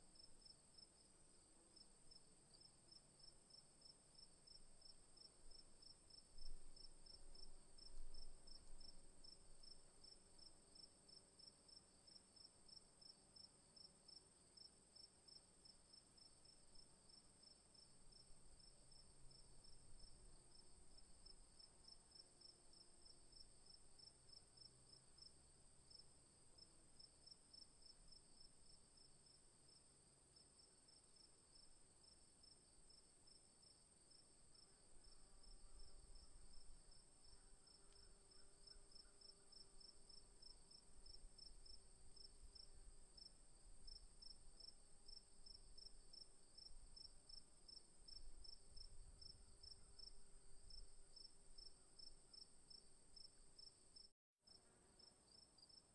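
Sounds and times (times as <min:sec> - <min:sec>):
insect chirps: 0:00.2 - 0:55.9.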